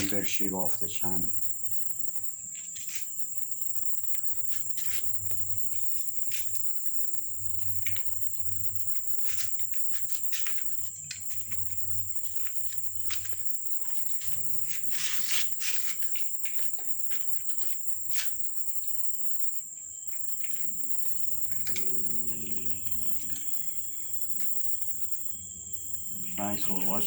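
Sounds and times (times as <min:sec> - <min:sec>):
crickets chirring: 0:00.0 - 0:27.0
light clicks and rustles: 0:02.1 - 0:18.8, 0:20.1 - 0:22.4.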